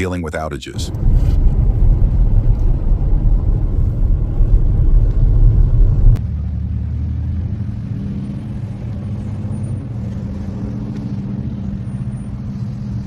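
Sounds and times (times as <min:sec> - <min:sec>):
steady hum: 0:00.8 - 0:06.2
loud low rumble: 0:00.8 - 0:07.8.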